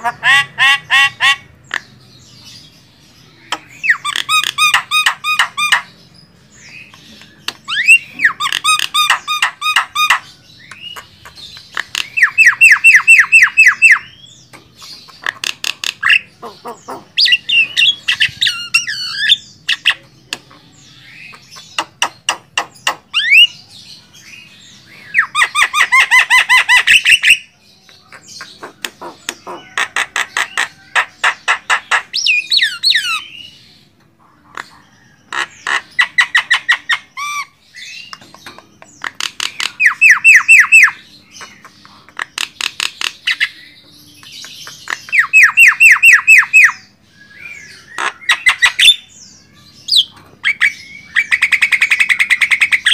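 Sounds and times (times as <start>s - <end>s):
bird harsh repeated calls: 0.0s - 2.6s, 3.2s - 6.0s, 6.7s - 23.7s, 24.3s - 33.6s, 34.4s - 43.8s, 44.4s - 52.9s.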